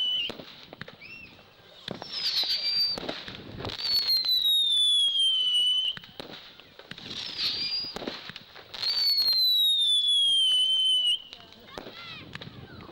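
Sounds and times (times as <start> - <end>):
firework whistles: 0.0 - 12.0
firework crackles and pops: 0.0 - 12.9.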